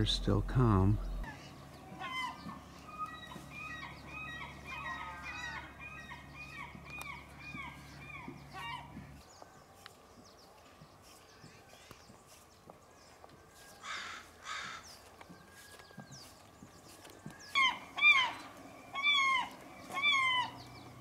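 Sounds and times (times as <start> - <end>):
faint steady low hum: 0.0 - 15.3
birds high-pitched calls: 0.0 - 21.0.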